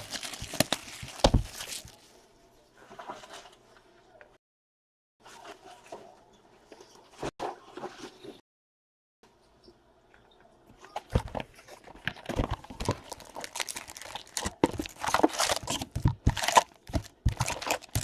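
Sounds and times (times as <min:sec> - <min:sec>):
plastic wrapping crinkling: 0:00.0 - 0:02.1, 0:11.9 - 0:18.0.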